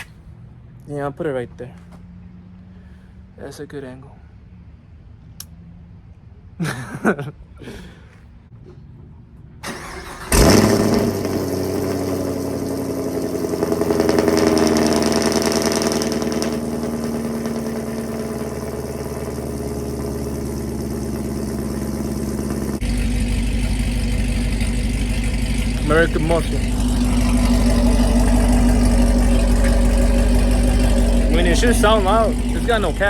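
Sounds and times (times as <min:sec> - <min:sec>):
car engine starting and idling: 0:09.5 - 0:33.0
starter motor cranking: 0:09.7 - 0:11.4, 0:13.8 - 0:33.0.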